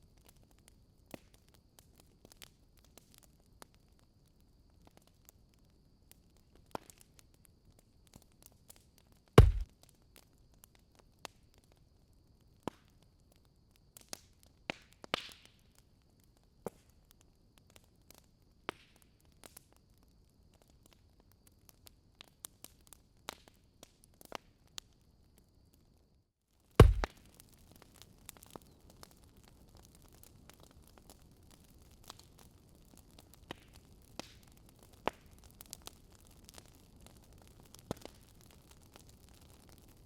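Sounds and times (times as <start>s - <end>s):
wood fire crackling: 0.1s - 11.8s, 26.6s - 40.0s
faint steady high hiss: 9.4s - 9.6s, 26.8s - 27.2s.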